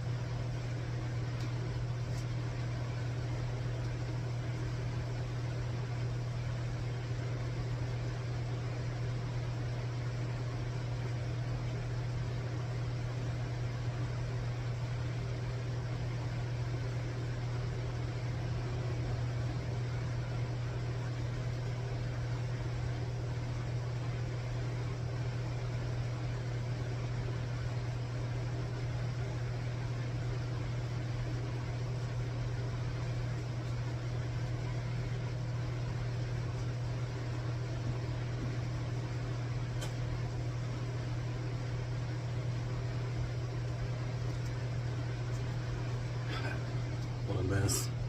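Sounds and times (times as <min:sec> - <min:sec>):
low machine hum: 0:00.0 - 0:48.0
constant hiss: 0:45.2 - 0:48.0.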